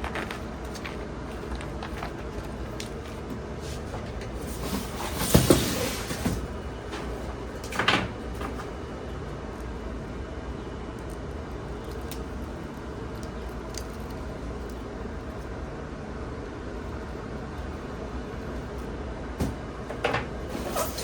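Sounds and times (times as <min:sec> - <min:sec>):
scrape: 0:03.6 - 0:06.4, 0:20.5 - 0:21.0.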